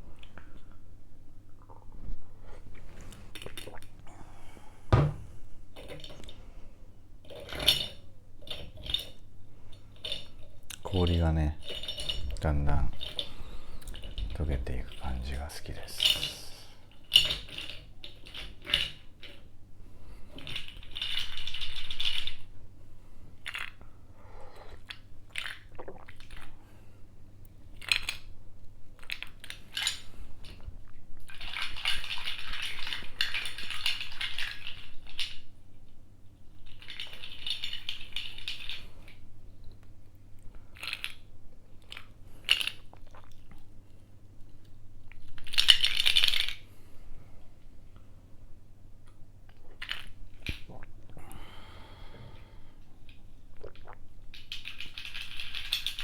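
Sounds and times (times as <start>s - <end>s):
ice cubes rattling in a cup: 31.2s - 35.5s, 36.5s - 39.2s, 54.3s - 56.0s.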